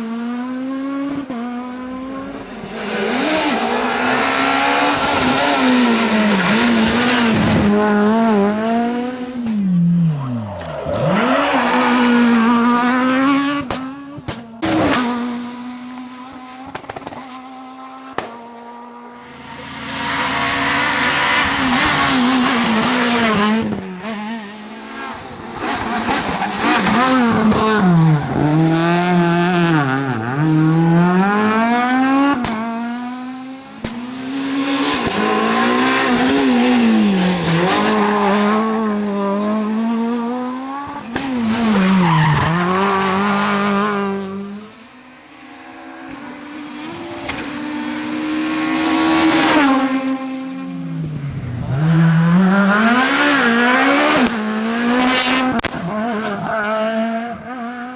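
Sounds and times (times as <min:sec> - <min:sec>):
rally car engines revving: 0:00.0 - 0:57.9.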